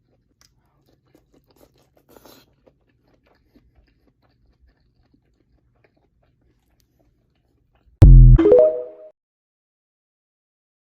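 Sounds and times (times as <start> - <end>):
person chewing food: 0.0 - 8.0.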